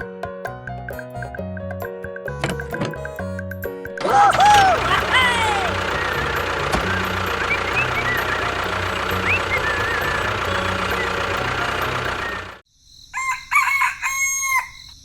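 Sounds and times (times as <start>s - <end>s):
motor running: 4.0s - 12.6s
rooster crowing: 4.1s - 6.0s, 13.1s - 14.9s
bird chirps: 5.8s - 12.6s.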